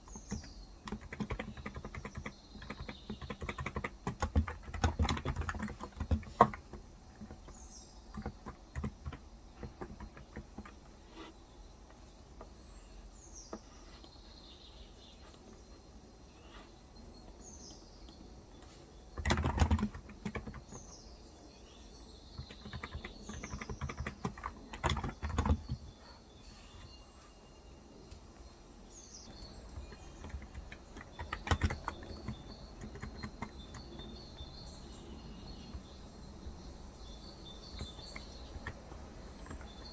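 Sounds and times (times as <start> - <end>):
birds chirping: 0.0 - 39.9
keyboard typing: 0.1 - 11.0, 19.1 - 20.9, 22.4 - 25.9, 29.3 - 39.9.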